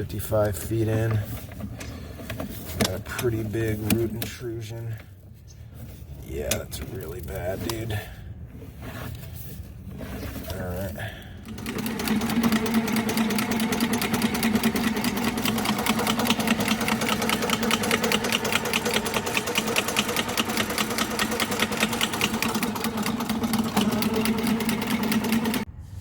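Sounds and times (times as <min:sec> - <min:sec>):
drain cleaning machine motor hum: 0:11.4 - 0:25.7
spinning cable clatter: 0:11.5 - 0:25.7.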